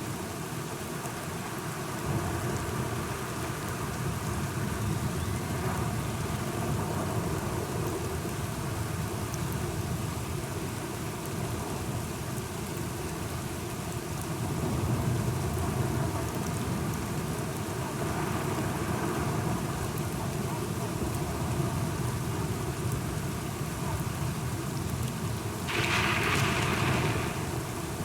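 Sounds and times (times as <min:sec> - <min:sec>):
steady rain falling: 0:00.0 - 0:28.0
low rumble of thunder: 0:25.7 - 0:28.0.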